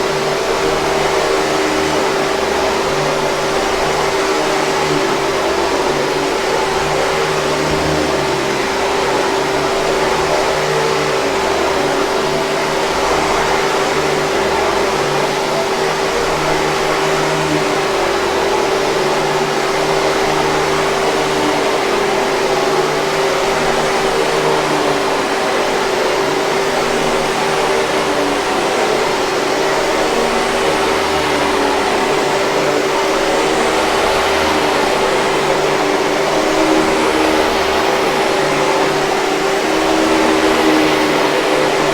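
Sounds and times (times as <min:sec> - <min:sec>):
vacuum cleaner running: 0:00.0 - 0:41.9.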